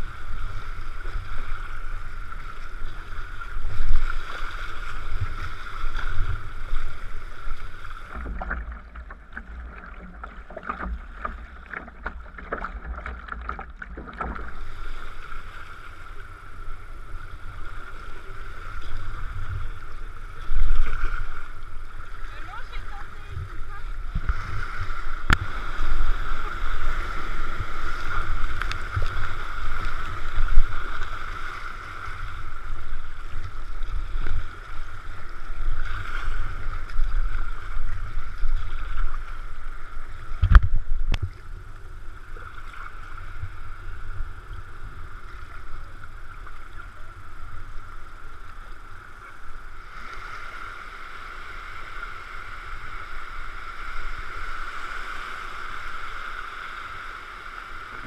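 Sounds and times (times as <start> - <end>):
water sloshing against kayak: 0.0 - 58.0.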